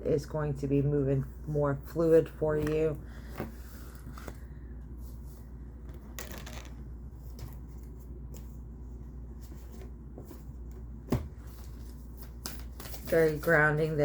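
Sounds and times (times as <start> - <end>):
cards rustling and flicking: 5.9 - 8.6, 11.5 - 14.0.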